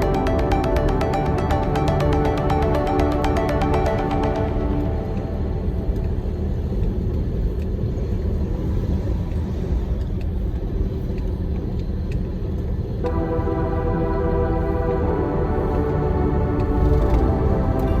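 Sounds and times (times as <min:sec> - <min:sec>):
music: 0:00.0 - 0:06.9, 0:13.0 - 0:18.0.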